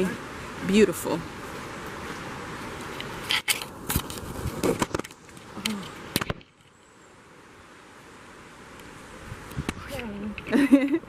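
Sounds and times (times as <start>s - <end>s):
steady rushing hiss: 0.0s - 11.0s
sharp knocks and crackles: 3.0s - 6.8s.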